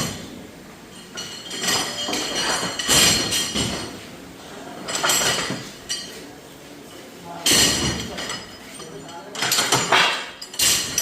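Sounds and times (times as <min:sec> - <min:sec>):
metal parts clattering and knocking: 0:07.5 - 0:11.0.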